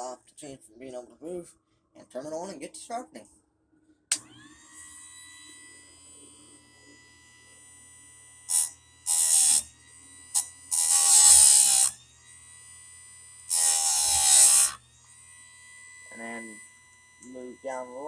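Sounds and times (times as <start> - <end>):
grinder motor whining: 4.1 - 18.0
grinding disc on metal chain: 8.5 - 9.7, 10.3 - 12.0, 13.5 - 14.8.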